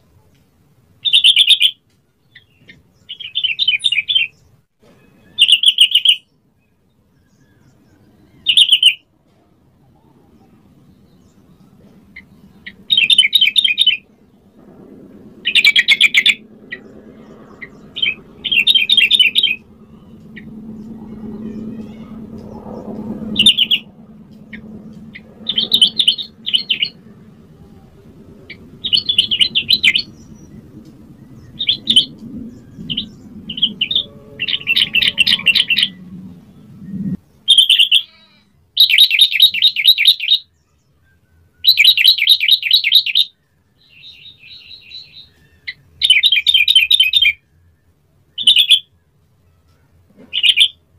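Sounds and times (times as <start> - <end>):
faint low hum: 6.2 - 38.8.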